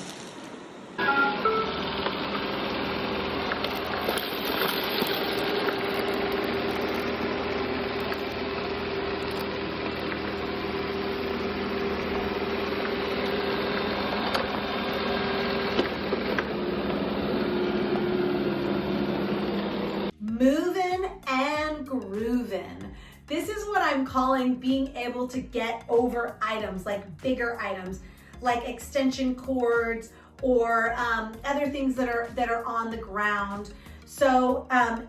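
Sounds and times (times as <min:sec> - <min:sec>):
robot vacuum motor humming: 0:01.0 - 0:20.1.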